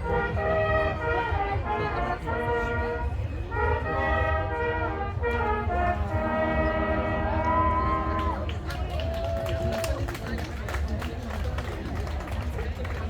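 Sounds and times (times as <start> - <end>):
hunting horns playing chords: 0.0 - 8.3.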